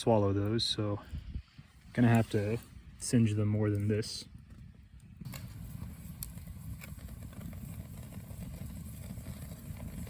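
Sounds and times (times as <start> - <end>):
lentils bubbling at a boil: 5.0 - 10.0.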